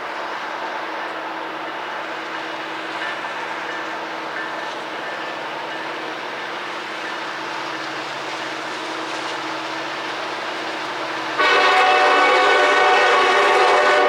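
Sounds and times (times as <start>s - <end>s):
diesel train engines under load: 0.0s - 14.0s
train air horn blast: 11.4s - 14.0s.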